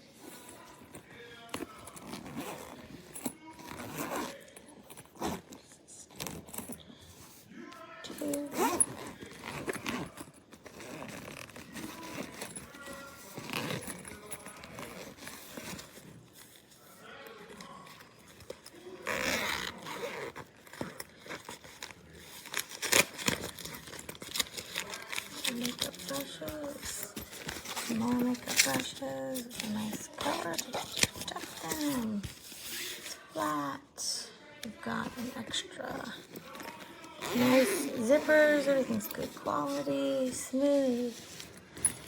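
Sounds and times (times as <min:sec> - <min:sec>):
zipper being pulled: 0:01.5 - 0:06.8, 0:08.1 - 0:16.7, 0:17.5 - 0:33.5, 0:36.0 - 0:42.0
handling scrapes: 0:08.1 - 0:33.7, 0:34.9 - 0:42.0.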